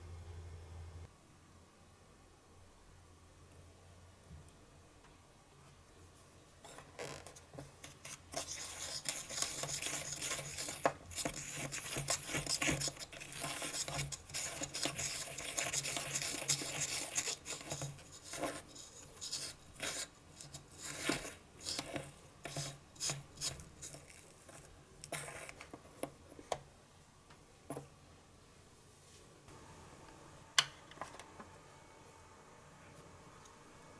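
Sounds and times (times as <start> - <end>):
utensil scraping in plastic tray: 7.0 - 26.0.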